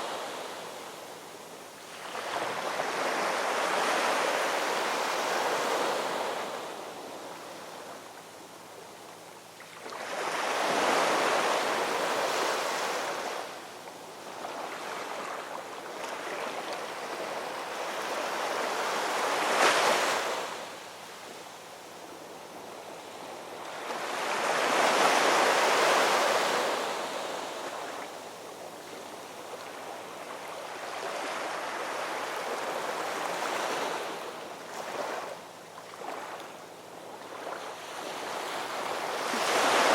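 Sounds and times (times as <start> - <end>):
ocean waves breaking on shore: 0.0 - 8.1, 9.6 - 39.9.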